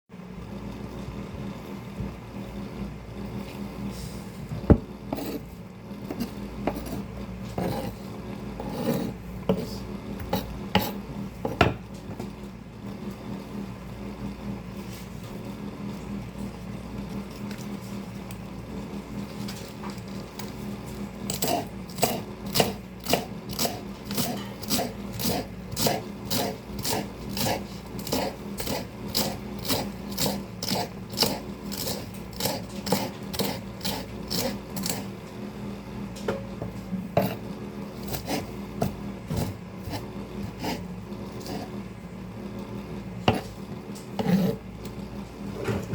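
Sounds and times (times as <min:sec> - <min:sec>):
electric fan humming: 0:00.1 - 0:45.9
knife chopping greens: 0:21.3 - 0:35.0.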